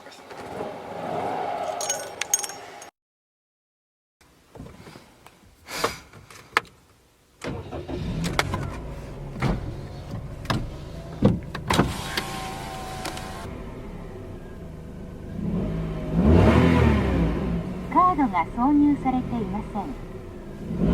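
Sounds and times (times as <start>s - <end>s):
car engine starting and running: 7.4s - 20.9s.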